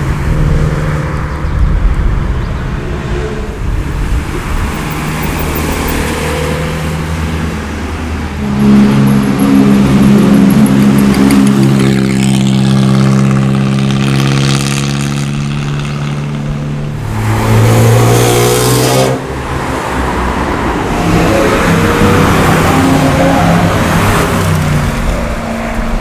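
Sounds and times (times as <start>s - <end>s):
car engines accelerating past: 0.0s - 26.0s.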